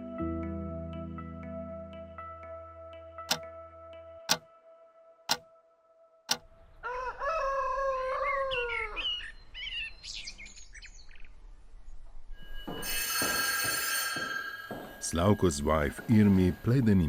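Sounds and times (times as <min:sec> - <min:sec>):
rooster crowing: 0:06.8 - 0:09.2.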